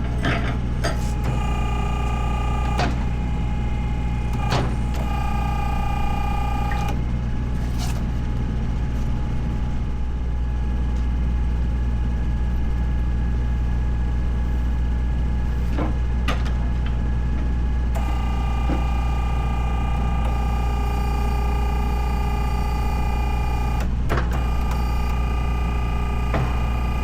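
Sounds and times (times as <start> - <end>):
steady whine: 0.0 - 7.1, 17.9 - 27.0.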